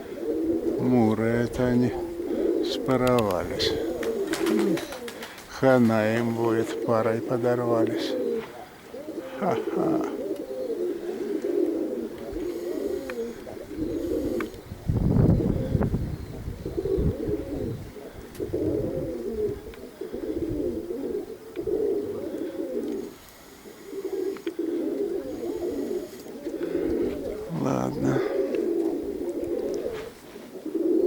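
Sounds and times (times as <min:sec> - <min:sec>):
pigeons cooing: 0:00.0 - 0:31.0
wind rumble on microphone: 0:13.4 - 0:22.2.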